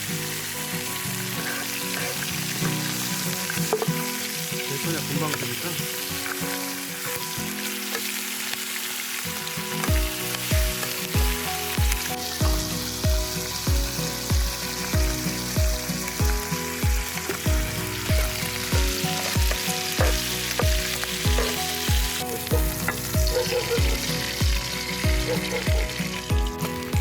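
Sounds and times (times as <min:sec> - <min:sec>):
steak sizzling over fire: 0:00.0 - 0:27.0
music with thumping beat: 0:09.9 - 0:27.0.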